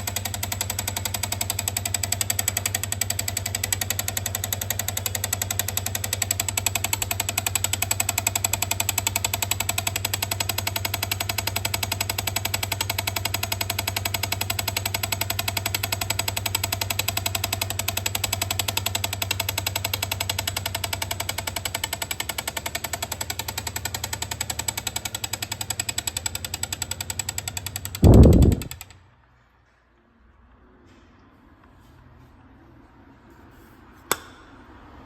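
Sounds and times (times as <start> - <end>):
low hum: 28.0 - 28.8.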